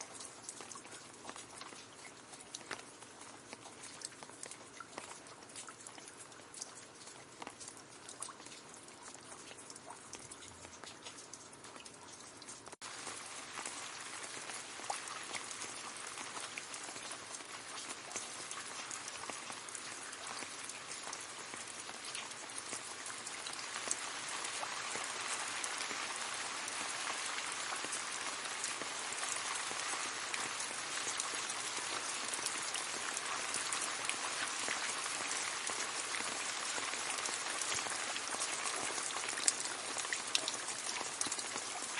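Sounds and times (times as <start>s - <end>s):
rain falling on leaves: 0.0s - 41.9s.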